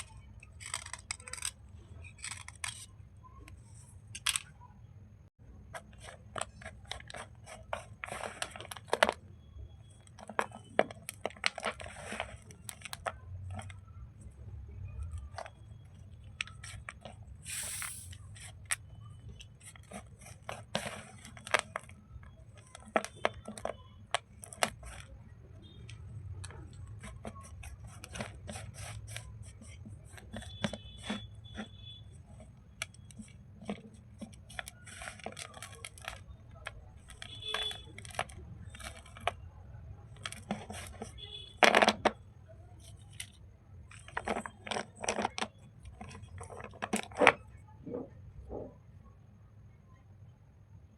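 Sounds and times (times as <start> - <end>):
hissing scrapes: 17.5 - 18.2.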